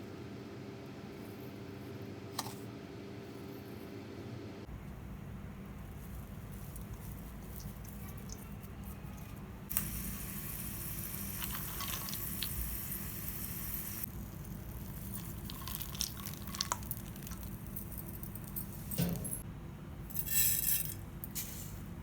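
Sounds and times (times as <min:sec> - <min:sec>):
steady hiss on stove: 0:09.7 - 0:15.6.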